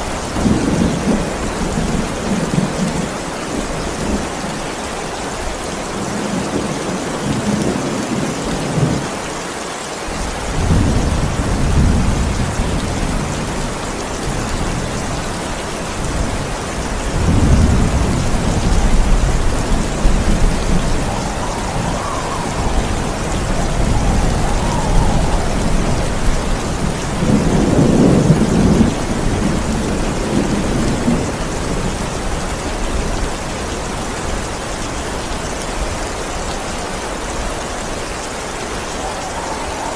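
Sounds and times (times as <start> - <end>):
heavy rain: 0.0 - 39.9
thunder rumbling: 10.1 - 35.0, 38.5 - 39.9.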